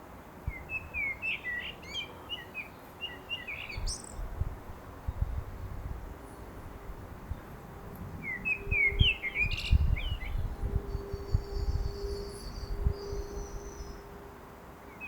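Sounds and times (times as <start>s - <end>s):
blackbird singing: 0.5s - 4.2s, 8.2s - 14.0s.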